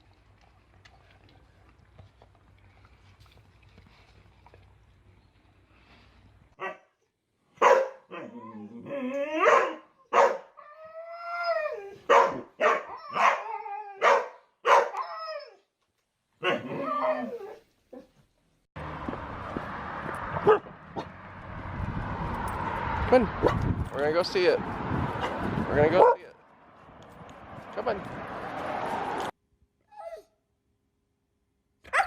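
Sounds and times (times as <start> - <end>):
dog barking: 6.6 - 6.9, 7.6 - 8.3, 9.4 - 10.5, 12.0 - 15.0, 16.4 - 16.9, 20.4 - 21.1, 26.0 - 26.3.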